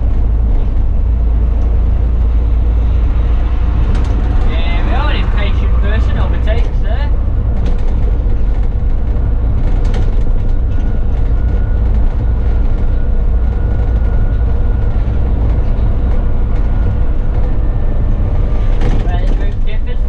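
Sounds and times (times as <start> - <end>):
bus engine rumble: 0.0 - 20.0
thin steady whine: 1.3 - 7.6.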